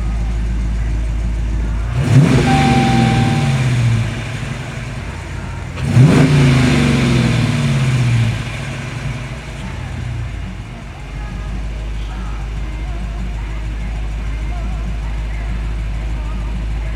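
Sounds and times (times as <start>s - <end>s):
car engine revving: 1.8s - 11.0s.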